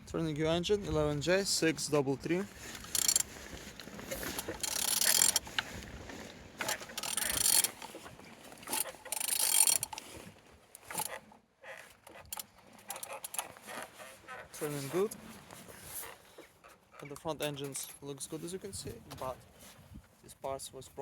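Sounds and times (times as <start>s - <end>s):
engine turned over by hand ratcheting: 2.6s - 14.8s.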